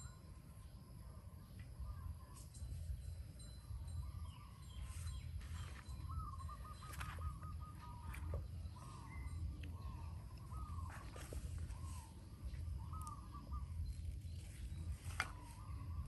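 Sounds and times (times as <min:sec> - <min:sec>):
bird trill: 0:01.8 - 0:16.0
steady low rumble: 0:01.8 - 0:16.0
birds warbling: 0:04.1 - 0:16.0.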